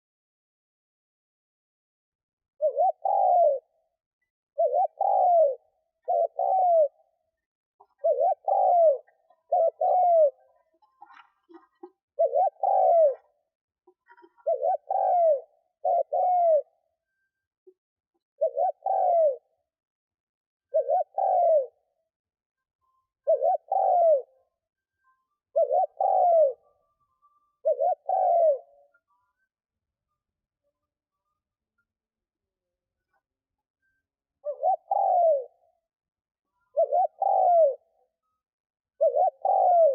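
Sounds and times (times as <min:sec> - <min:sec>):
dove cooing: 0:02.6 - 0:03.9, 0:04.6 - 0:07.2, 0:07.8 - 0:16.9, 0:18.4 - 0:19.6, 0:20.7 - 0:21.9, 0:23.2 - 0:24.4, 0:25.5 - 0:26.8, 0:27.5 - 0:29.0, 0:34.4 - 0:35.6, 0:36.7 - 0:38.1, 0:39.0 - 0:39.9.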